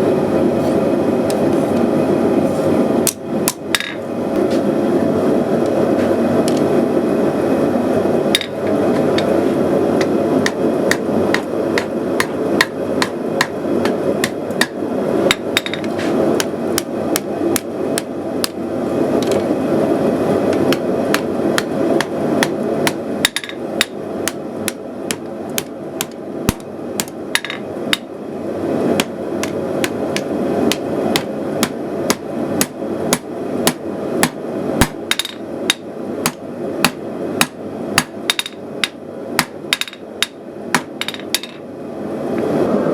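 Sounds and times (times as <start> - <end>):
gas forge burner rushing: 0.0 - 38.2
hammer on hot steel on anvil: 3.1 - 4.0, 10.0 - 18.6, 20.5 - 28.1, 29.0 - 41.6.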